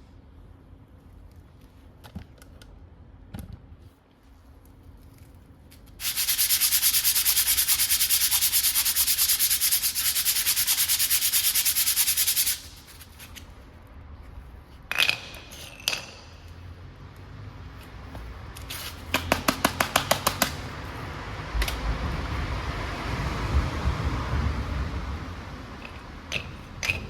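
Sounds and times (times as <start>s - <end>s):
scrubbing on brake part: 5.8s - 13.6s.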